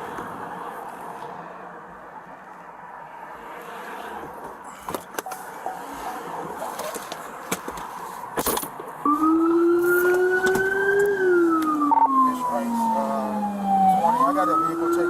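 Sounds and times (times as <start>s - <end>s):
police siren wailing: 9.0s - 15.0s.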